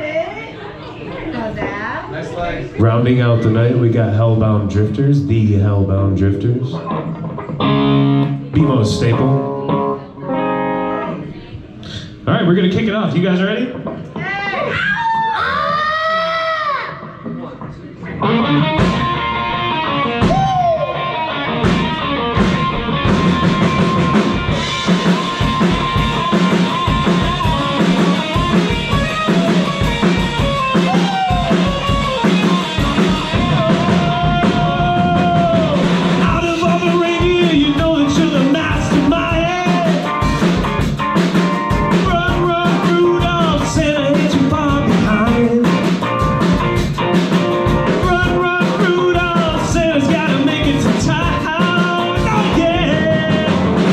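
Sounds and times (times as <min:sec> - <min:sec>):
rock band playing: 0:02.8 - 0:11.5, 0:15.5 - 0:53.9
sliding guitar notes: 0:06.6 - 0:11.4, 0:18.0 - 0:53.8.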